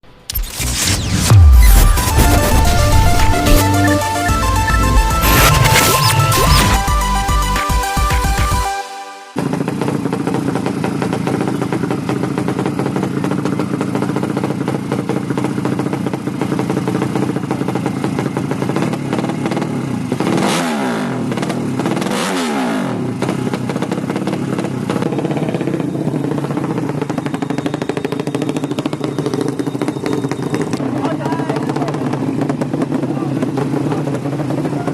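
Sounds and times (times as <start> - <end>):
motorcycle engine running: 9.4 - 34.9
motorcycle throttle blips: 9.4 - 34.9.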